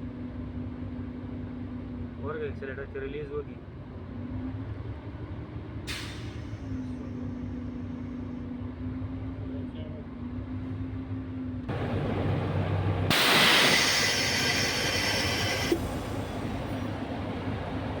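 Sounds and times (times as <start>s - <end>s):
bus diesel engine running: 3.7s - 18.0s
compressed air hissing: 13.1s - 17.0s.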